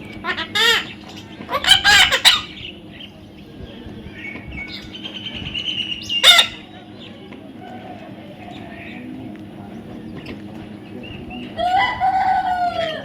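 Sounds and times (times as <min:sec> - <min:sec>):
parrot calling: 0:00.1 - 0:02.7, 0:04.7 - 0:06.7.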